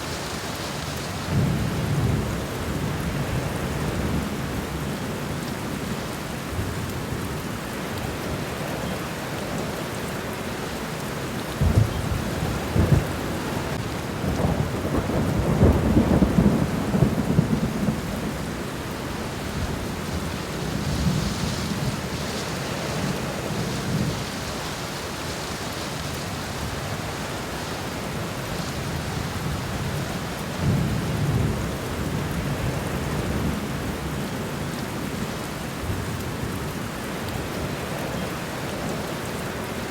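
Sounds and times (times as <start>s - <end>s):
rain falling on ground: 0.0s - 39.9s
low rumbles of thunder: 11.5s - 22.3s, 28.1s - 34.2s.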